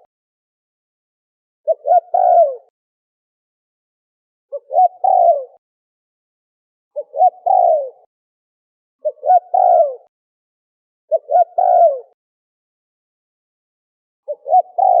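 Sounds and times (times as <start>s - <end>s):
dove cooing: 1.7s - 2.7s, 4.5s - 5.6s, 7.0s - 8.1s, 9.0s - 10.1s, 11.1s - 12.2s, 14.3s - 15.0s.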